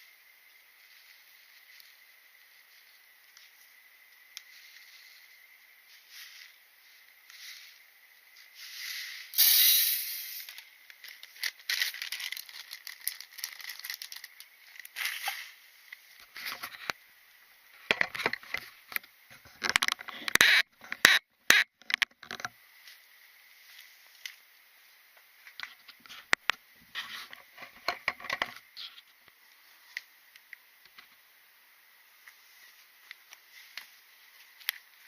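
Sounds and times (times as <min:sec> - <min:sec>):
rustling and scraping: 0:04.4 - 0:09.4, 0:10.4 - 0:17.0, 0:25.5 - 0:30.0
objects clicking and knocking: 0:17.8 - 0:22.5, 0:25.5 - 0:28.7.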